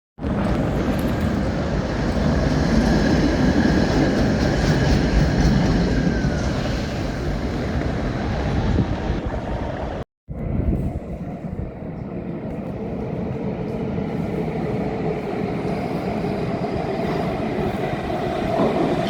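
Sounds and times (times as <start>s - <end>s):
rail vehicle rumbling past: 0.2s - 19.0s.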